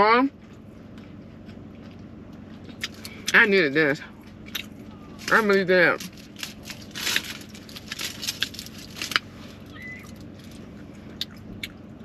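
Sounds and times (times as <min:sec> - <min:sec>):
chewing with wet mouth clicks: 0:00.4 - 0:03.4, 0:04.2 - 0:04.8, 0:11.2 - 0:11.9
foil wrapper crinkling: 0:05.2 - 0:09.3.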